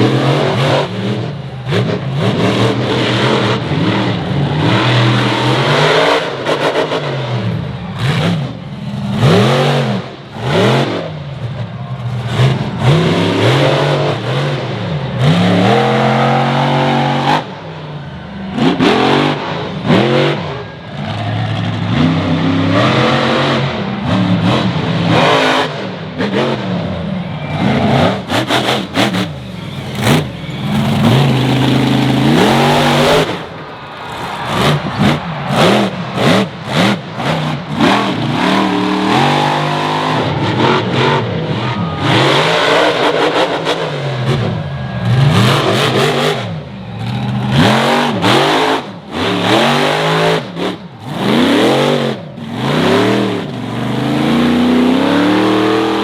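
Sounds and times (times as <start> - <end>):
monster truck engine revving: 0.0 - 56.0.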